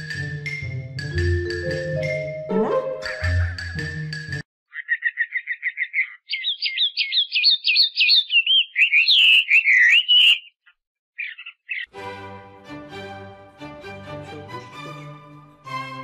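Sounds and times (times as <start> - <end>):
songbird singing: 4.7 - 11.9.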